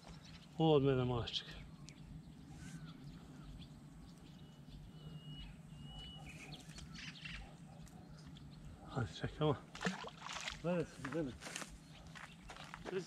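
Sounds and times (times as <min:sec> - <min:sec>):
steady low hum: 0:00.0 - 0:13.0
birds whistling and chirping: 0:01.4 - 0:09.0.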